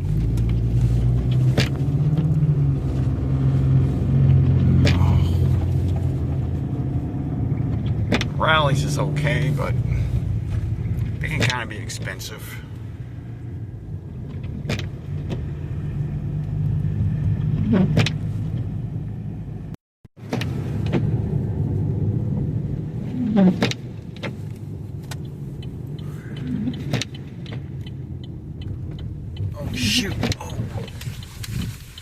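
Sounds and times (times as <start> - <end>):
engine and tyre hum: 0.0 - 32.0.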